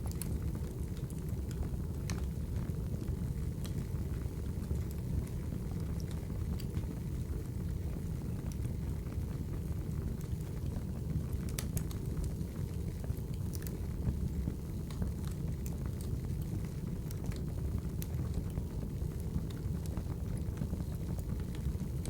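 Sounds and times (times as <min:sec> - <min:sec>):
fire crackles: 0:00.0 - 0:22.0
low rumble of burning logs: 0:00.0 - 0:22.0.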